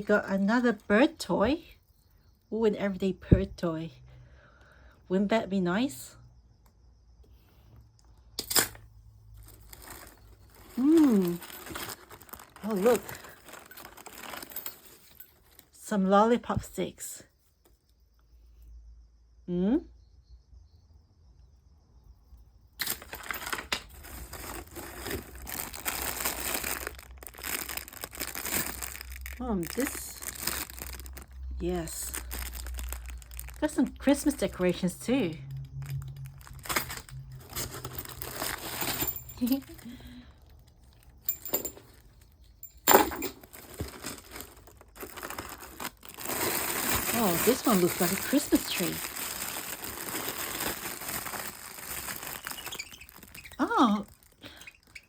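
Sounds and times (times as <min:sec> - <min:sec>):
packaging crinkling and rustling: 0:08.4 - 0:15.7, 0:22.8 - 0:55.0.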